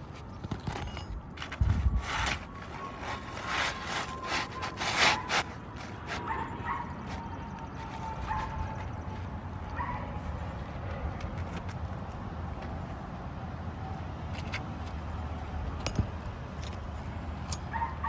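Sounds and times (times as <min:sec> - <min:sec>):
roofing tool scraping shingles: 0:00.0 - 0:07.2
distant dog barking: 0:06.2 - 0:07.3, 0:17.7 - 0:18.0.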